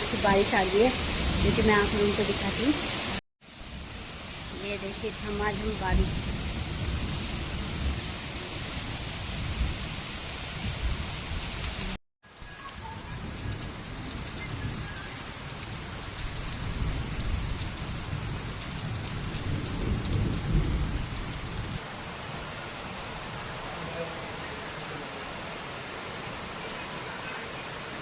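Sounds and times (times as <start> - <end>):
heavy rain hissing: 0.0 - 28.0.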